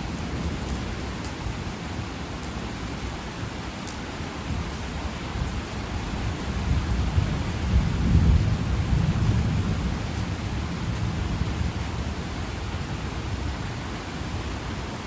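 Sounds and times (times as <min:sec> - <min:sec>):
heavy rain: 0:00.0 - 0:15.0
thunder rumbling: 0:04.4 - 0:14.5.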